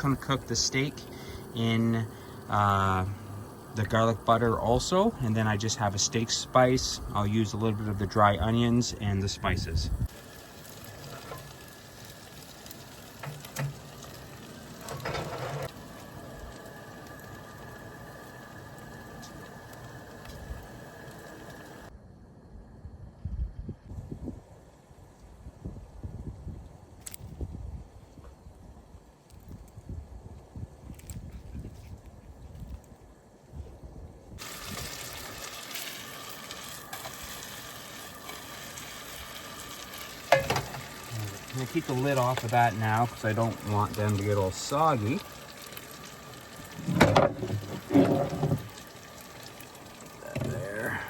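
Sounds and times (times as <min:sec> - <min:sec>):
potatoes sizzling in a skillet: 0:00.0 - 0:21.9, 0:34.4 - 0:51.0.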